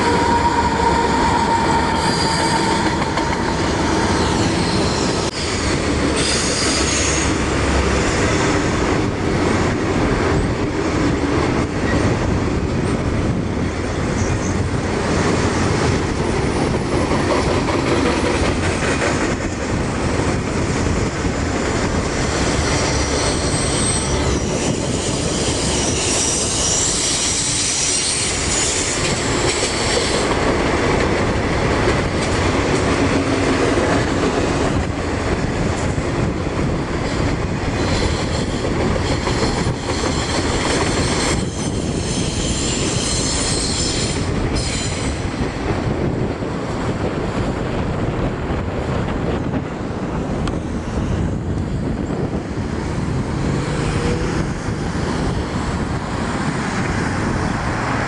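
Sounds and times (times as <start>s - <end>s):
high-pitched wheel squeal: 0.0s - 7.4s, 22.3s - 30.1s, 40.9s - 45.3s
freight train wheels clacking: 0.0s - 13.4s, 14.1s - 52.4s.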